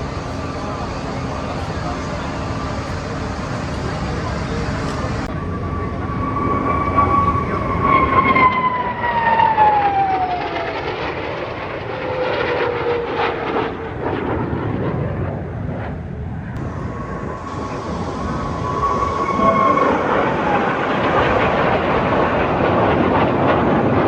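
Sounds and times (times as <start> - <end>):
jet aircraft passing overhead: 0.0 - 24.0.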